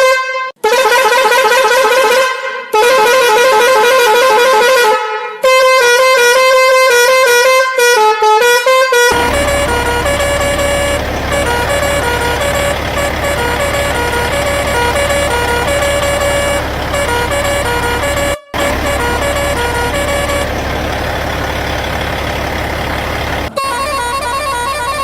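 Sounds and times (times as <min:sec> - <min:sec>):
horn blasts wavering in pitch: 0:09.0 - 0:25.0
low hum: 0:09.1 - 0:23.6.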